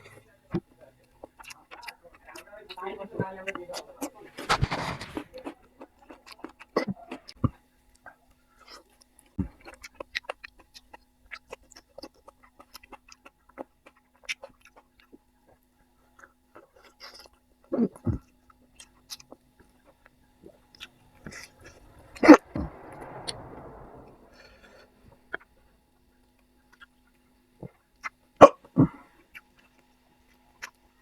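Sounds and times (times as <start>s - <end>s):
soft rushing noise: 20.4s - 26.0s
low thumps: 20.7s - 25.8s
loud sharp sound: 20.8s - 25.7s.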